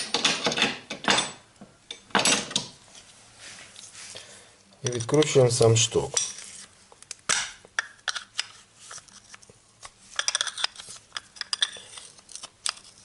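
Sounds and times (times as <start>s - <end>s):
metal parts clicking and clinking: 10.2s - 12.8s.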